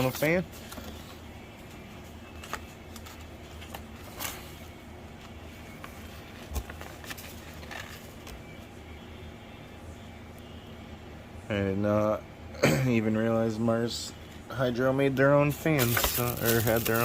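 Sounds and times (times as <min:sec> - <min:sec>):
low steady hum: 0:00.0 - 0:17.0
clicks and rustles of packaging: 0:05.8 - 0:08.4, 0:15.8 - 0:17.0.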